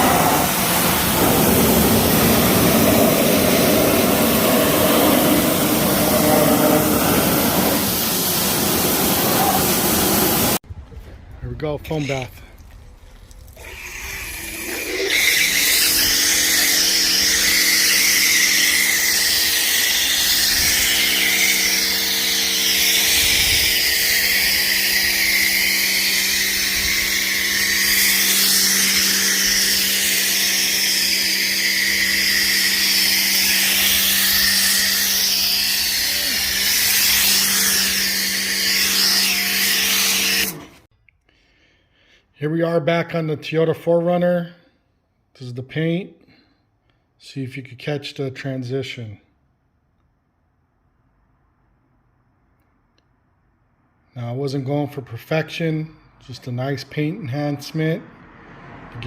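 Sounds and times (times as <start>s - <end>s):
foam cannon spray hiss: 0.0s - 10.6s
pressure washer motor hum: 0.0s - 10.6s, 13.5s - 40.9s.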